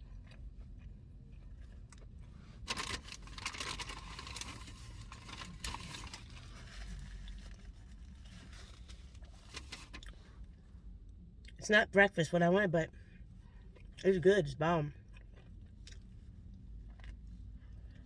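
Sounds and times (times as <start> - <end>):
low steady rumble: 0.0 - 18.0
paper wrapper crinkling: 2.7 - 7.5.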